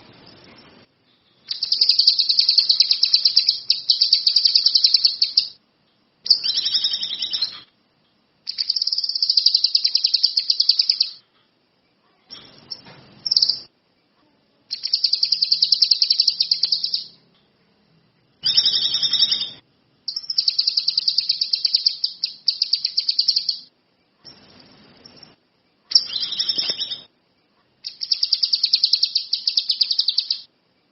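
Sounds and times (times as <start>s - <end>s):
songbird buzzy high trills: 1.5s - 5.6s.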